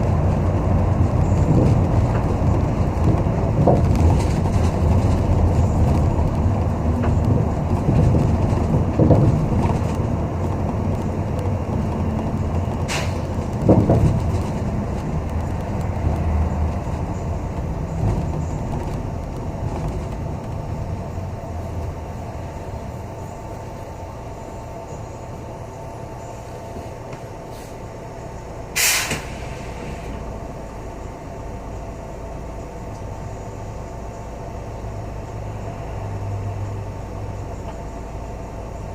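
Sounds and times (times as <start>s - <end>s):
bus engine and road rumble: 0.0s - 38.9s
air brake hiss: 27.4s - 27.9s, 28.8s - 30.2s.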